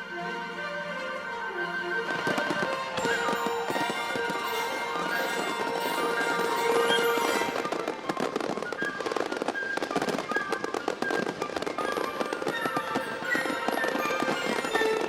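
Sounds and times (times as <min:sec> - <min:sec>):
background music: 0:00.0 - 0:08.8, 0:11.8 - 0:15.0
fireworks crackling and popping: 0:02.0 - 0:15.0.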